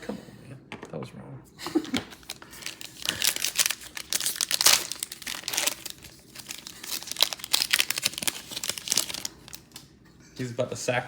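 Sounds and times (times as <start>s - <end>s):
plastic wrapper crinkling and tearing: 1.8s - 9.9s.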